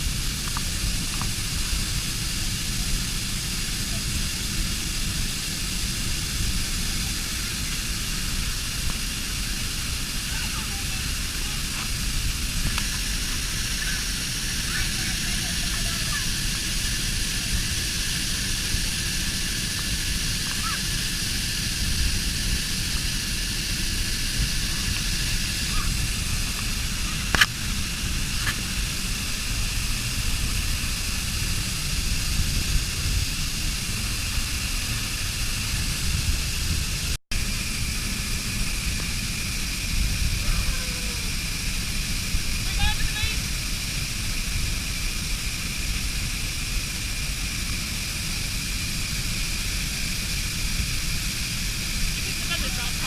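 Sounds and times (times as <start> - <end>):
waterfall rushing: 0.0 - 32.3.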